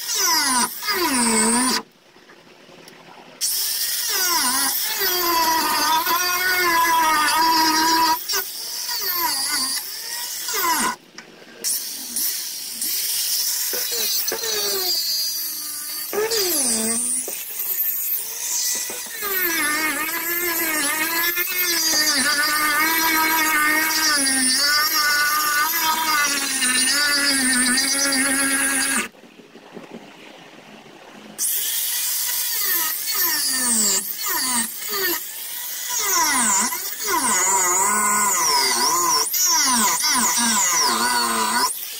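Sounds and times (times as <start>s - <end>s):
power grinder motor: 11.7s - 29.1s, 31.4s - 41.8s.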